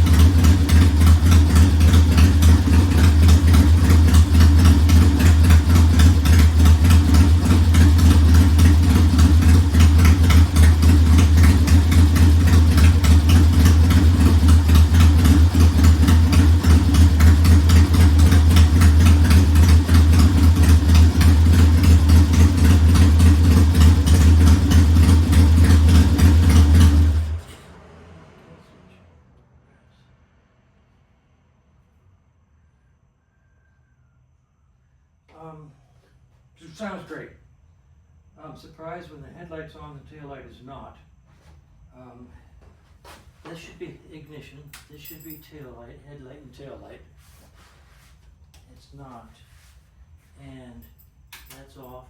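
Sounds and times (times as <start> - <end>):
motorcycle engine idling: 0.0 - 27.4.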